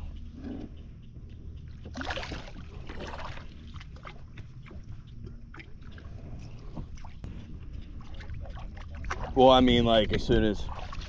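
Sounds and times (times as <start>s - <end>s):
steady low rumble: 0.0s - 11.0s
water splashing against kayak: 1.9s - 11.0s.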